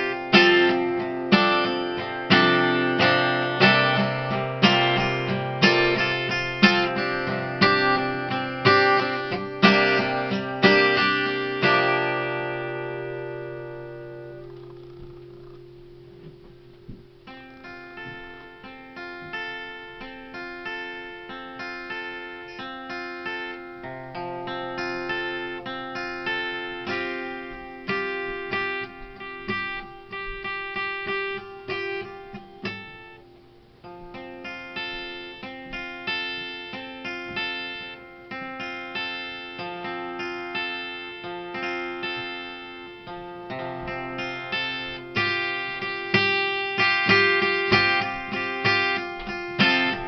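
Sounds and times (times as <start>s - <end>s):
acoustic guitar picking: 0.0s - 50.0s.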